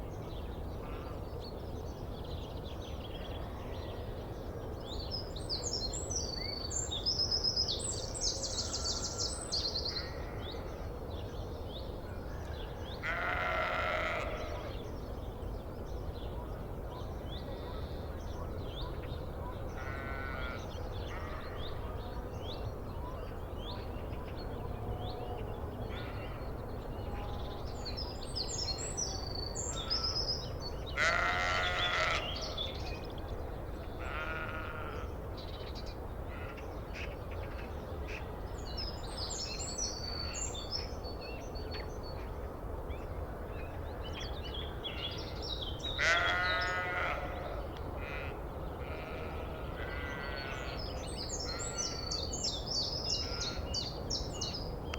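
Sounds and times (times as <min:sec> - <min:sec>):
low background noise: 0:00.0 - 0:54.9
sheep bleating: 0:46.0 - 0:47.4.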